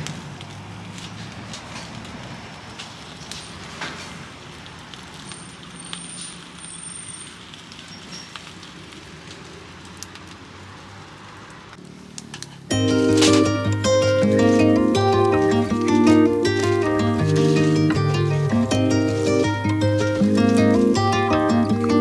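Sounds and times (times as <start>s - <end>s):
campfire crackling and popping: 0.0s - 22.0s
even hiss: 11.8s - 22.0s.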